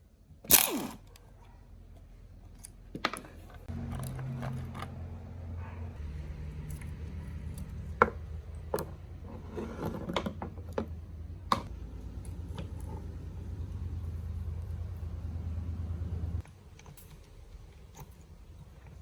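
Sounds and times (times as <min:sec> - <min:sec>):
steady low hum: 0:03.5 - 0:19.0.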